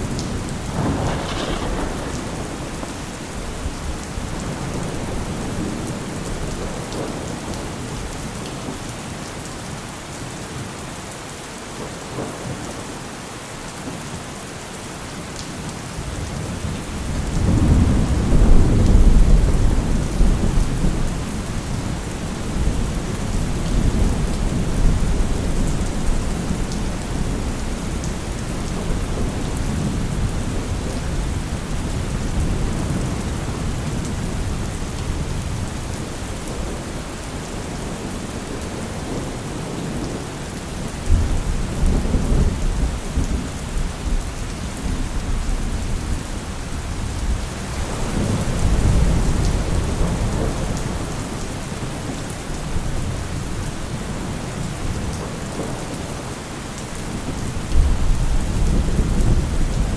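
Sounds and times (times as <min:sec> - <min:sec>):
thunder rumbling: 0:00.0 - 0:08.2, 0:16.1 - 0:40.2, 0:40.8 - 0:56.3, 0:57.1 - 0:59.9
steady rain: 0:00.0 - 0:59.9
thunder peal: 0:00.2 - 0:05.9.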